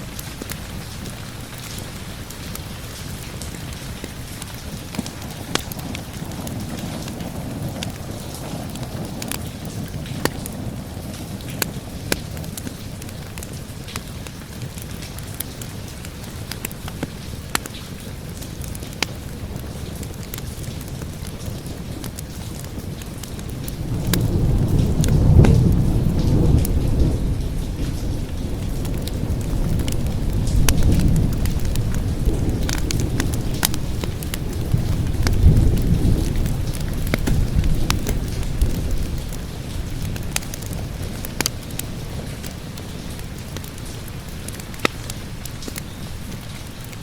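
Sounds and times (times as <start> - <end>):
steady rain: 0.0 - 47.0
wood fire crackling and popping: 0.0 - 47.0
rolling thunder: 3.7 - 13.9, 20.0 - 44.6.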